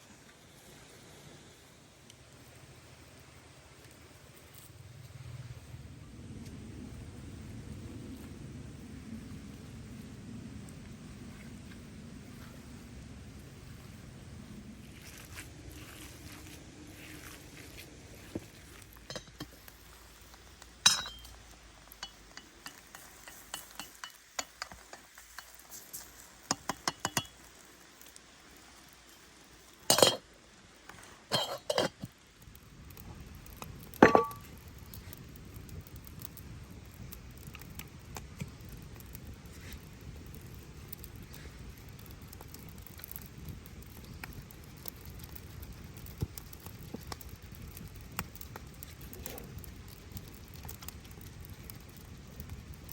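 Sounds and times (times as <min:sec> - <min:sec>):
cookware clinking and knocking: 0:20.9 - 0:21.3, 0:29.9 - 0:30.2, 0:34.0 - 0:34.4.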